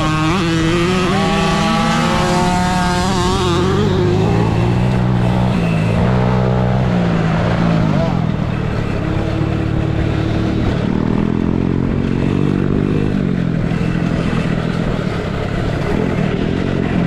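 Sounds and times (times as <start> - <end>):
motocross bike engine: 0.0 - 17.0.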